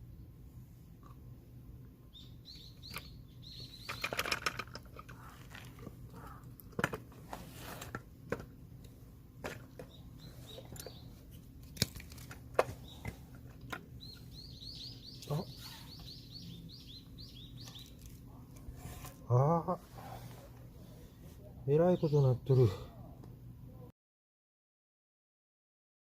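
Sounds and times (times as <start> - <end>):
small birds chirping: 2.0 - 6.7, 9.6 - 23.2
tools and parts clinking: 3.8 - 5.9.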